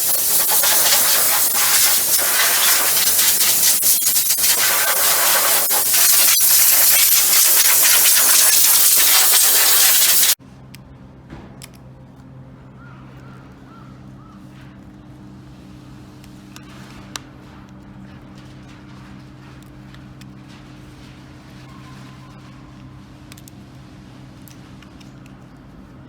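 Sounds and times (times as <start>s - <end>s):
high-pressure jet hissing: 0.0s - 10.4s.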